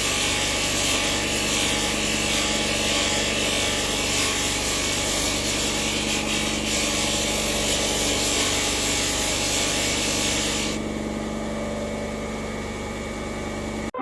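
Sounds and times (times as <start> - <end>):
abrasive hiss against workpiece: 0.0 - 10.8
power tool motor running: 0.0 - 13.9.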